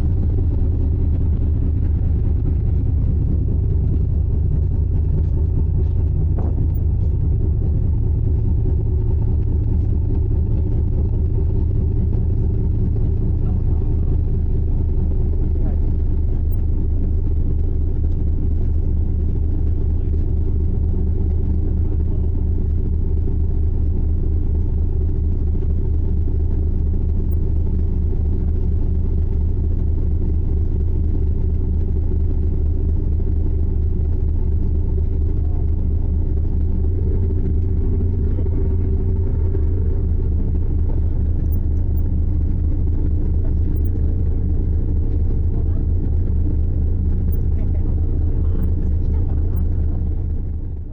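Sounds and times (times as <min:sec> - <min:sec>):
ship engine rumbling: 0:00.0 - 0:18.0, 0:32.9 - 0:50.9.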